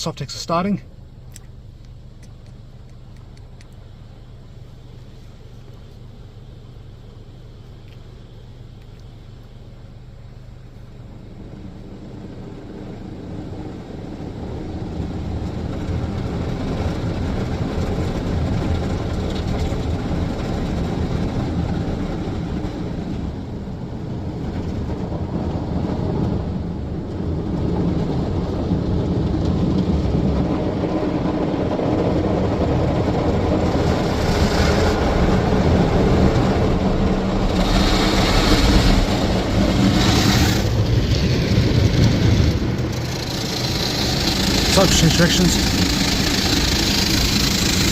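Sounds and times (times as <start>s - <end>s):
car wash water spray: 33.0s - 47.9s.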